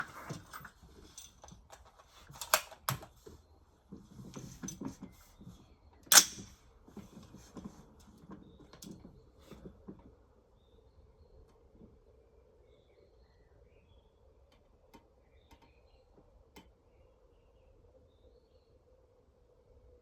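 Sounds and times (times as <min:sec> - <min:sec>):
rifle handling clicks and rustles: 0:00.0 - 0:05.3, 0:06.0 - 0:09.6
sharp metallic snap: 0:06.1 - 0:06.5.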